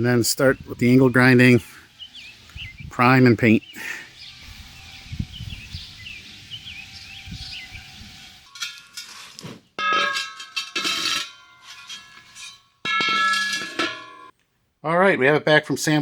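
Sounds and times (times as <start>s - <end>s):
birds chirping: 0.0s - 8.9s
steel wheel rims clanging: 8.2s - 14.3s.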